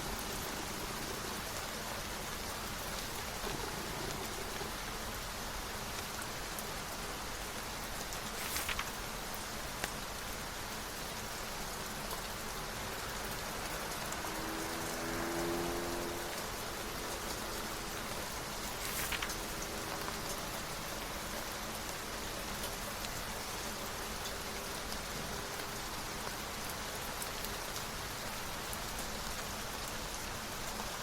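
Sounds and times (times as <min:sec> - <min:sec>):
steady rain falling: 0:00.0 - 0:31.0
brief rustle: 0:08.3 - 0:09.1, 0:18.7 - 0:20.2.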